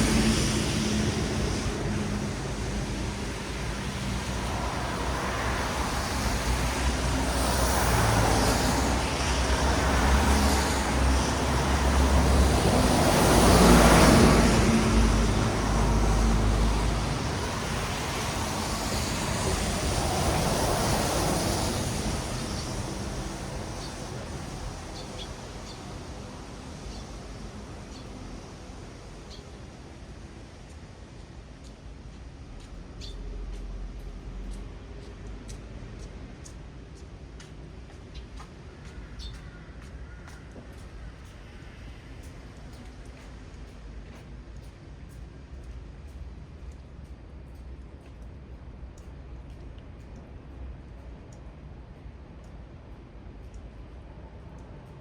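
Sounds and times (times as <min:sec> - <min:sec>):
tyres hissing on wet road: 0:00.0 - 0:38.8.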